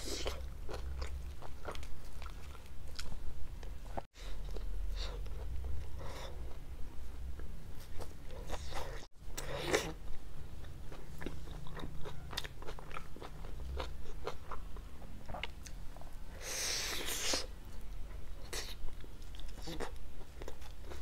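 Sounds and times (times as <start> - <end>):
chewing pizza: 0.1 - 3.2, 7.8 - 15.8.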